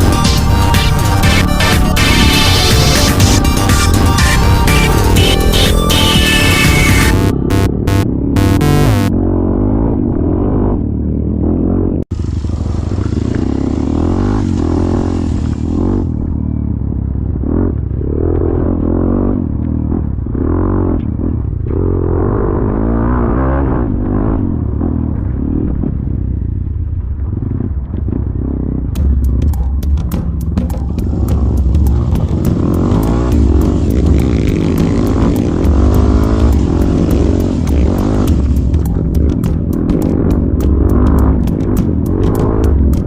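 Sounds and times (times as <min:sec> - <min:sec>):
music: 0:00.0 - 0:09.1, 0:29.0 - 0:43.0
vehicle engine revving: 0:00.0 - 0:26.5, 0:27.2 - 0:43.0.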